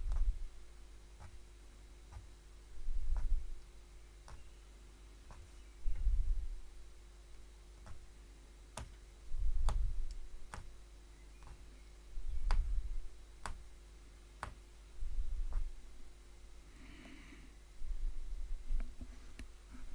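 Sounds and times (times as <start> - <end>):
needle clicking through fabric: 0.0 - 0.5, 1.2 - 1.4, 2.1 - 4.5, 5.2 - 6.2, 7.8 - 8.1, 8.7 - 10.8, 11.4 - 13.7, 14.4 - 15.9
dull low thumps: 0.0 - 0.6, 2.1 - 3.6, 5.8 - 6.7, 9.3 - 10.6, 12.2 - 13.7, 15.0 - 16.0, 17.8 - 19.1.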